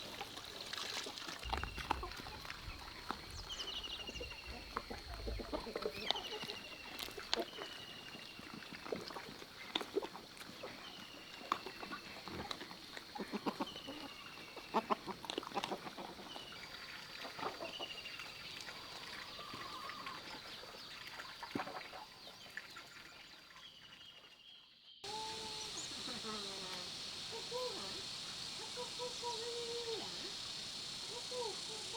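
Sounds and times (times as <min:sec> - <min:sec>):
chickens peeping: 0:01.4 - 0:08.6, 0:13.2 - 0:17.9.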